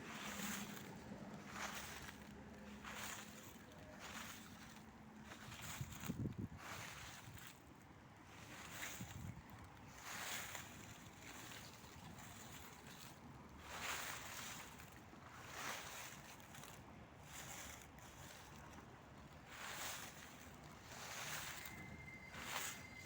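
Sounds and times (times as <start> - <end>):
dry leaves rustling: 0.0 - 23.0.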